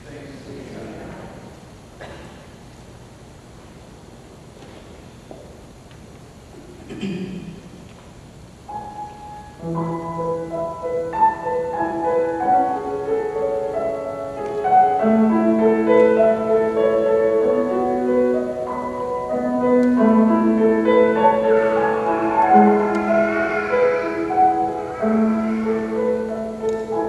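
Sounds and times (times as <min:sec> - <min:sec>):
slow keyboard music with chords: 0:08.8 - 0:27.0.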